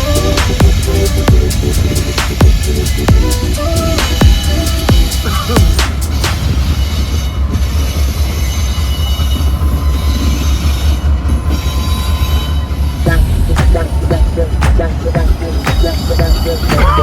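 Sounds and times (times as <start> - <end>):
train wheel squeal: 0.0 - 13.2, 13.8 - 17.0
train rumbling past: 0.0 - 17.0.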